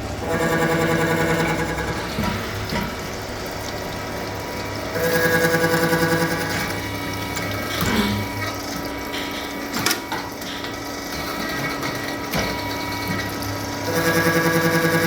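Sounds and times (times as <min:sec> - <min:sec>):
milling machine humming: 0:00.0 - 0:15.0
milling machine cutting: 0:04.2 - 0:15.0.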